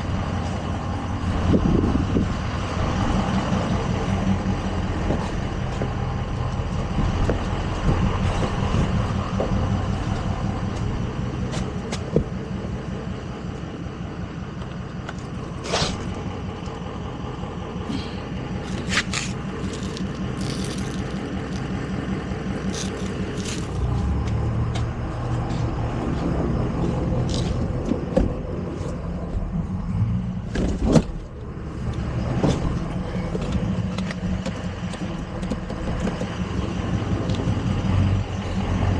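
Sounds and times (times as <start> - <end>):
truck engine running: 0.0 - 38.9.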